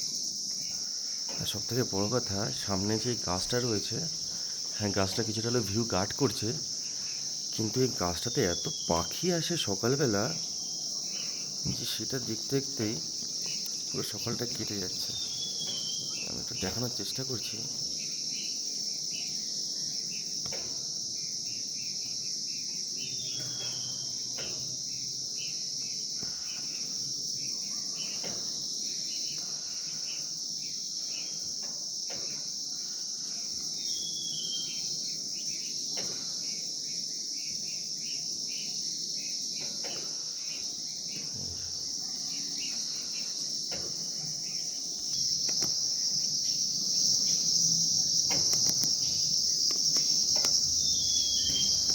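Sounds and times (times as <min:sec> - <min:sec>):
falling bird calls: 0:00.0 - 0:51.9
high-pitched insect drone: 0:00.0 - 0:51.9
bird chirps: 0:00.6 - 0:19.4, 0:21.5 - 0:24.6, 0:33.7 - 0:36.7, 0:37.4 - 0:51.9.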